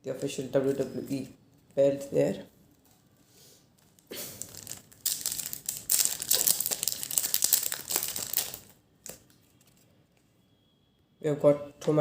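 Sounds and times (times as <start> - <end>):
foil wrapper crinkling: 3.8 - 9.9.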